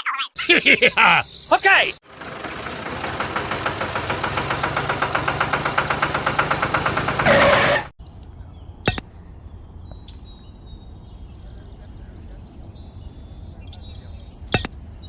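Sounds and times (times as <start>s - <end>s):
faint birdsong: 0.0s - 2.0s, 8.0s - 15.0s
small engine knocking: 2.0s - 7.9s.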